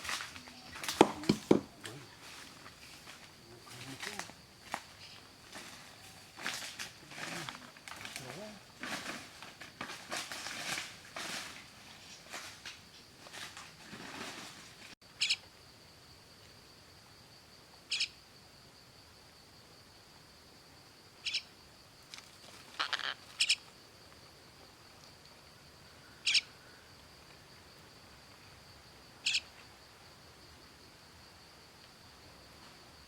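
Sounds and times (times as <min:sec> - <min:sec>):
rustling: 0:00.0 - 0:15.0
bird calling with sharp notes: 0:15.2 - 0:15.4, 0:21.2 - 0:21.4, 0:22.8 - 0:23.6, 0:26.2 - 0:26.5, 0:29.2 - 0:29.5.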